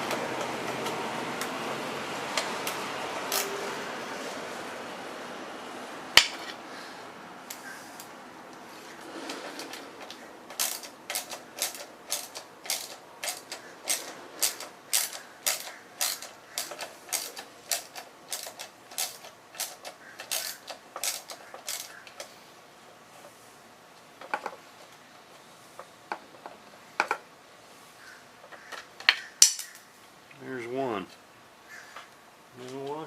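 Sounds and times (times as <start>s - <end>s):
socket ratchet clicking: 9.6s - 22.3s.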